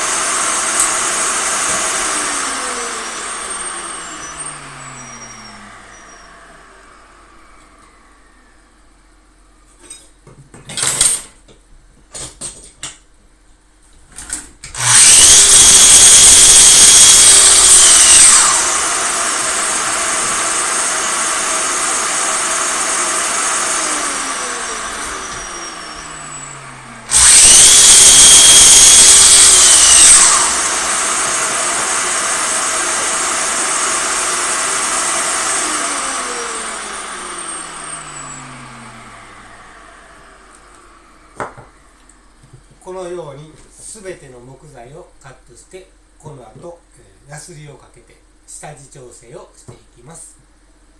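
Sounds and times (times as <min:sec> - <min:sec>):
miter saw cutting wood: 0:00.0 - 0:08.5, 0:14.7 - 0:41.7.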